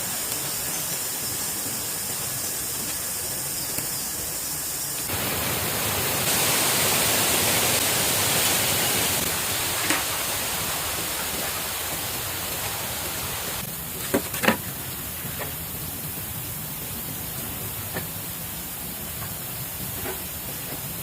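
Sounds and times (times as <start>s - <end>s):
water rushing: 5.0s - 14.0s.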